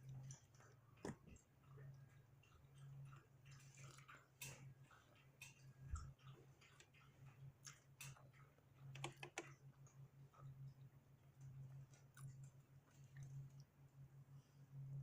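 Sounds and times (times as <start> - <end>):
steady low hum: 0.0 - 15.0
chewing and wet mouth clicks: 11.4 - 13.7.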